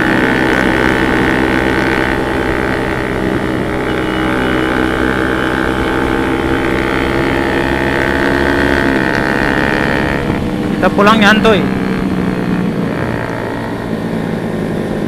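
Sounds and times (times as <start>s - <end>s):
motorcycle engine running: 0.0s - 15.0s
wind rushing over microphone: 5.7s - 15.0s.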